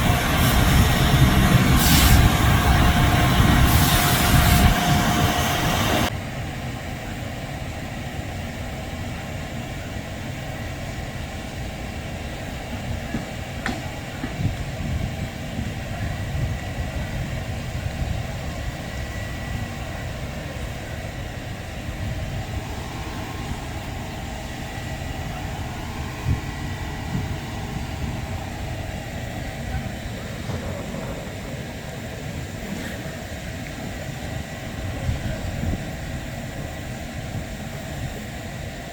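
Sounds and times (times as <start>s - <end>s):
loud rushing noise: 0.0s - 6.1s
low mechanical rumble: 0.0s - 38.9s.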